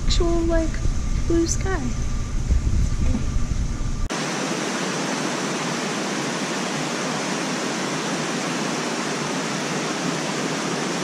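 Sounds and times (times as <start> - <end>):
low rumble: 0.0 - 4.1
heavy rain pouring: 4.1 - 11.0.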